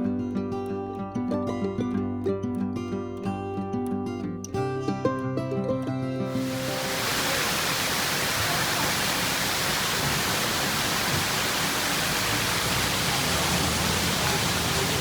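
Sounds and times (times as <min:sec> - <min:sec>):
waterfall rushing: 0:06.4 - 0:15.0.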